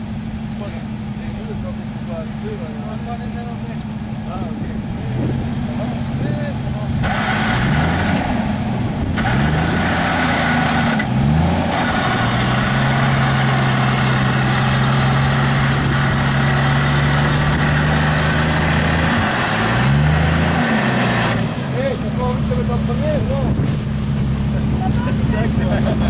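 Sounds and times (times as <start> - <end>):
car engine accelerating: 0.0 - 26.0
road and wind noise: 0.0 - 26.0.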